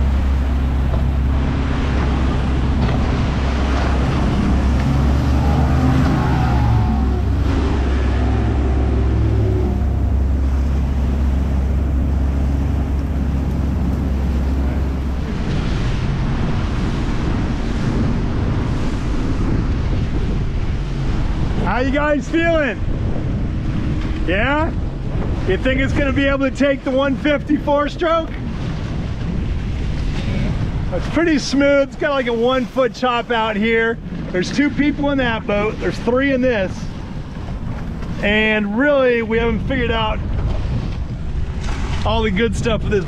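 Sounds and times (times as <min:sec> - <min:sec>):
hull slapping through water: 0:00.0 - 0:21.8, 0:22.8 - 0:43.0
outboard motor running hard: 0:00.0 - 0:31.1
wind on the microphone: 0:00.0 - 0:43.0.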